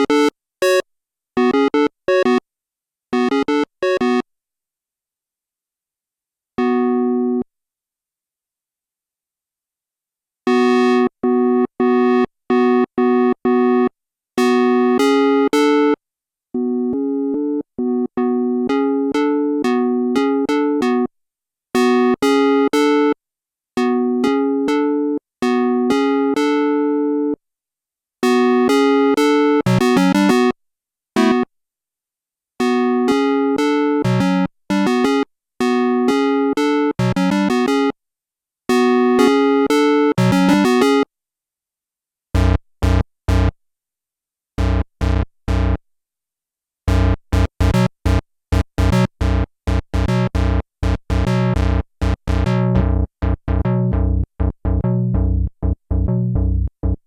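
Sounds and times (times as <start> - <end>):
synthesizer playing chords: 52.3 - 57.0.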